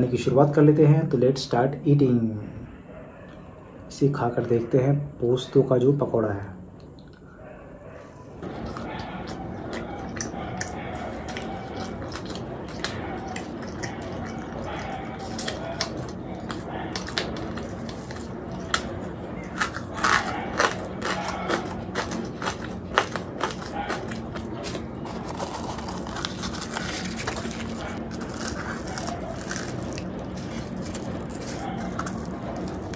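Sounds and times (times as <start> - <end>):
crunchy chewing of fried snack: 8.4 - 32.9.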